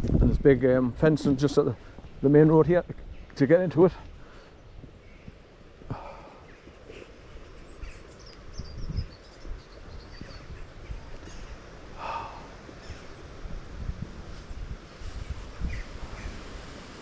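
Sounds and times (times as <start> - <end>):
wind rumbling on microphone: 0.0 - 17.0
breathy snorts: 12.0 - 12.6.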